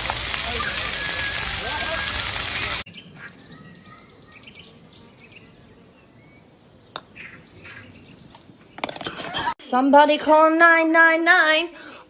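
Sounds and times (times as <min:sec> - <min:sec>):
small birds chirping: 0:00.5 - 0:09.0.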